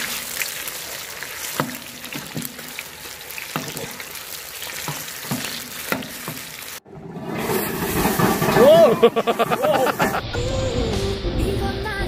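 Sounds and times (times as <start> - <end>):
deep-frying sizzle: 0.0 - 6.9.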